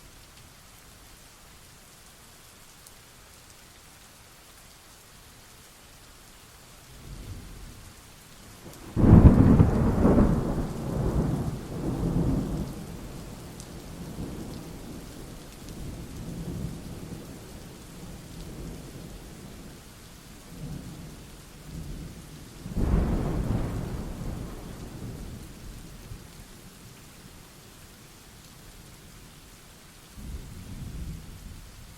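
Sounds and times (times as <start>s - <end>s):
steady rain: 0.0s - 31.9s
thunderclaps: 8.8s - 13.1s, 22.7s - 25.4s
low thunder rumbling: 8.8s - 15.0s, 22.7s - 26.2s, 30.2s - 31.9s.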